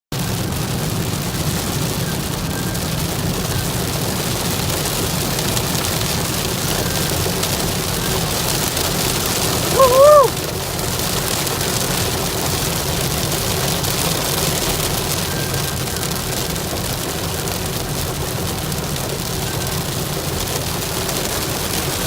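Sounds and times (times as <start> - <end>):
car rumbling on road: 0.1 - 22.0
hail and rain drumming on car: 0.1 - 22.0
hoot-like tone: 9.7 - 10.3.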